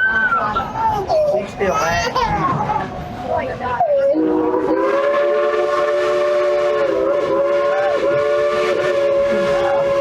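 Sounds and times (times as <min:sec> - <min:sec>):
steam locomotive whistle: 0:04.0 - 0:10.0.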